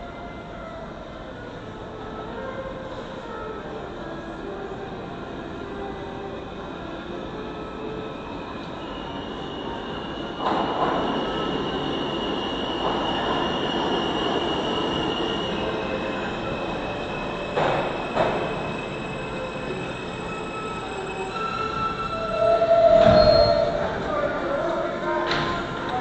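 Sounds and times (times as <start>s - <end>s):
subway train running on track: 0.0s - 26.0s
high-pitched squeal: 8.8s - 25.1s.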